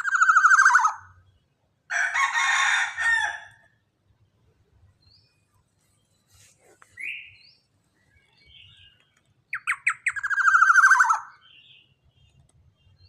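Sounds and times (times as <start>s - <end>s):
bird calling with trill: 0.0s - 1.4s, 6.0s - 13.0s.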